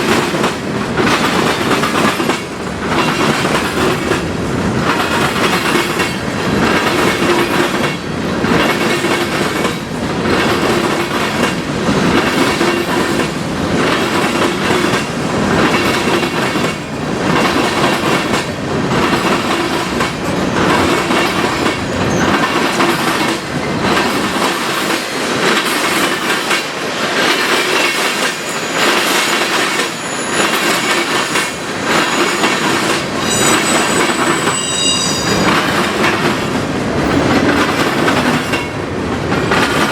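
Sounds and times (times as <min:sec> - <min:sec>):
train wheels clacking on rails: 0:00.0 - 0:39.9
high wheel squeal: 0:28.4 - 0:35.8.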